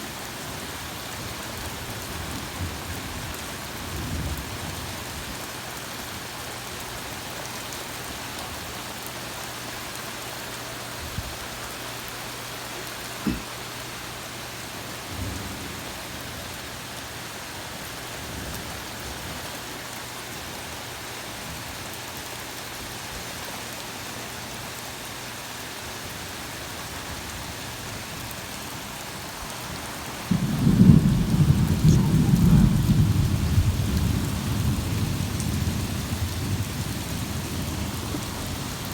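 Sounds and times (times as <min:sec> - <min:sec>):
heavy rain falling: 0:00.0 - 0:38.9
short thumps: 0:13.2 - 0:13.5
thunder clap rumbling: 0:29.7 - 0:38.9.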